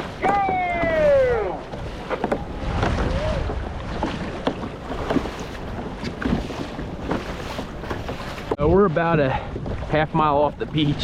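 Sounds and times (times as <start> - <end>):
water splashing against kayak hull: 0.0 - 11.0
wind buffeting microphone: 0.0 - 11.0
faint distant shout: 0.2 - 1.6.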